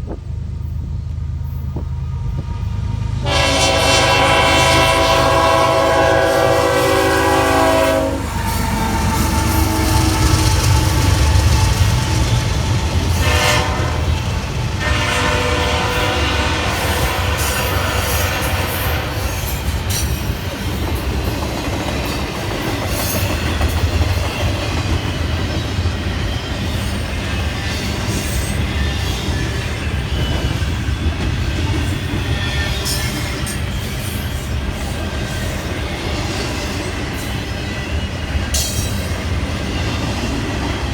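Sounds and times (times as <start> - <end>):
train rumbling past: 0.0 - 40.9
locomotive horn: 2.2 - 10.0, 13.1 - 19.5.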